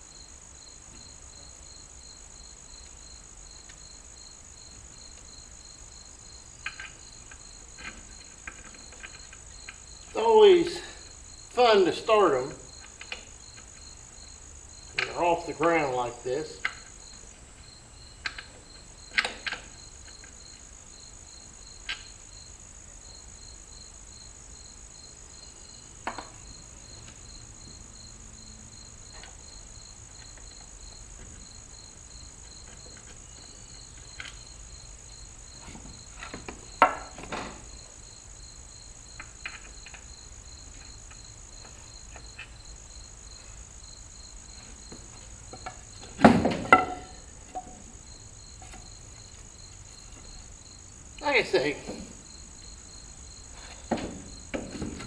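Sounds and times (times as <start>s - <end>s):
crickets chirping: 0.0s - 55.0s
tire tools knocking and clanking: 6.6s - 10.8s, 18.2s - 20.5s, 35.5s - 37.9s, 44.5s - 49.4s, 53.6s - 55.0s.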